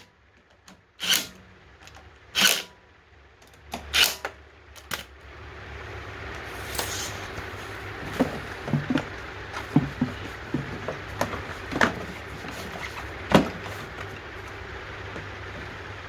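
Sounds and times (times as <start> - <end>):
steady low hum: 0.0 - 16.0
knocks and clicks of tools: 0.4 - 2.7, 3.4 - 5.1.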